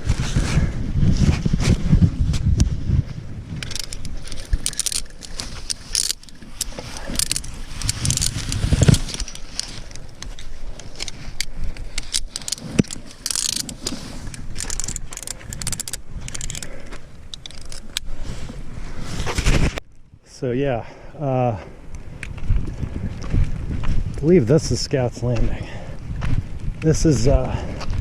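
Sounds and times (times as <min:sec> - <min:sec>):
wind buffeting microphone: 0:00.0 - 0:20.2, 0:21.4 - 0:28.0
footsteps and gear clicking jangling: 0:03.6 - 0:18.1.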